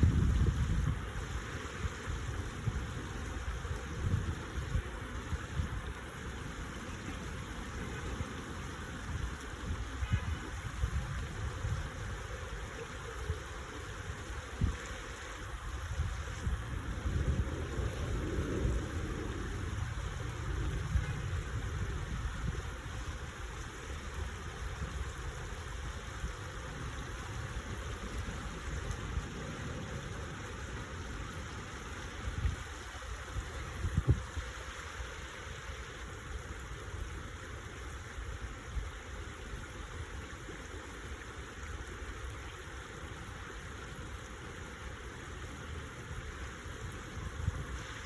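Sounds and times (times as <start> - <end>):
stream water flowing: 0.0 - 48.0.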